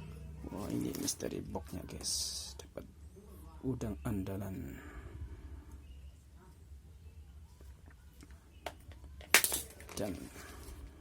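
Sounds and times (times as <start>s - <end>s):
low steady hum: 0.0s - 11.0s
soft handling noises: 0.4s - 1.4s, 7.4s - 11.0s.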